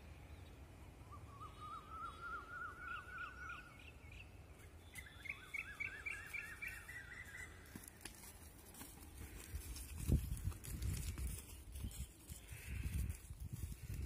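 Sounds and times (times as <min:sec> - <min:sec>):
bird chirping in quick runs: 0:03.8 - 0:07.9.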